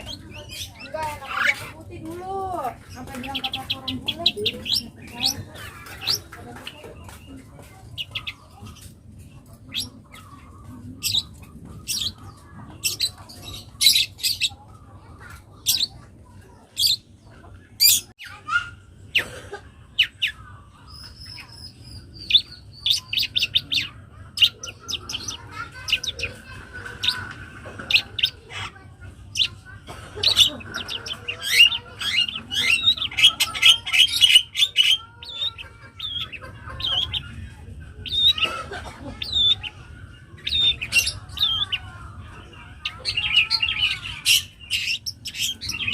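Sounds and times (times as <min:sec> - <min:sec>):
fast bird chattering: 0:00.0 - 0:17.1, 0:19.9 - 0:45.9.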